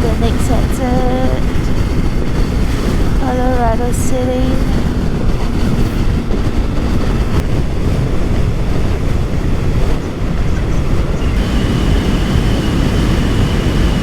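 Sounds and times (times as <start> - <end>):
motorcycle engine and road rumble: 0.0 - 14.0
thin high whine: 0.0 - 14.0
wind rushing over microphone: 0.0 - 14.0.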